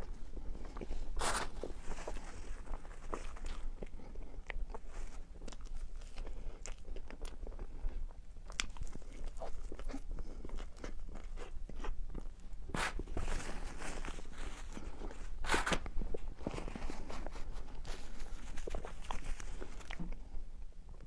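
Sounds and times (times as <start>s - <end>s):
person chewing and biting: 0.0s - 20.2s.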